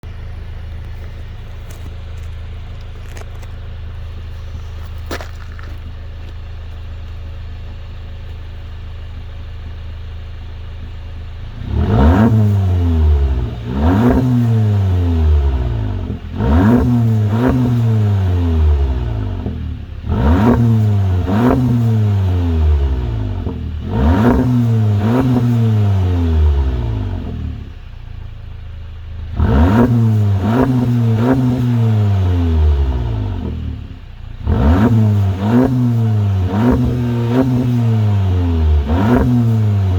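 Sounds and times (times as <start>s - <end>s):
car engine idling and revving: 0.0s - 39.9s.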